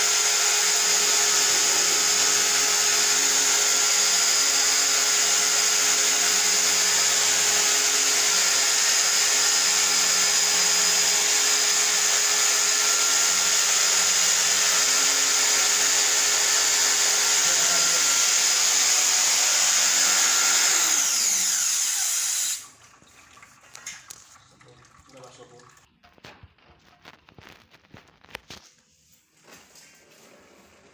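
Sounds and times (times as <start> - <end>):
electric motor whining: 6.2 - 22.6.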